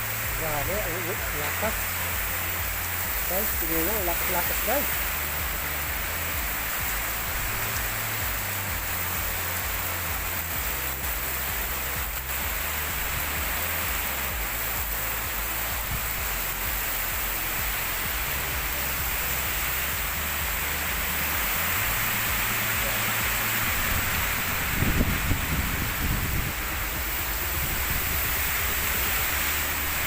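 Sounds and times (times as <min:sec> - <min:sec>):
heavy rain hissing: 0:00.0 - 0:30.0
wind rumble on microphone: 0:23.6 - 0:30.0.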